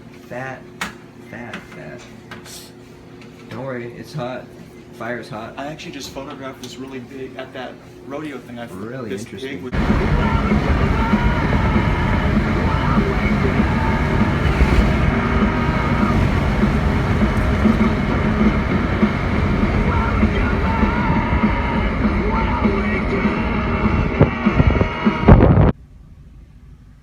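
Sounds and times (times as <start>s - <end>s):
loud engine rumble: 9.7s - 24.2s
music playing: 9.8s - 25.3s.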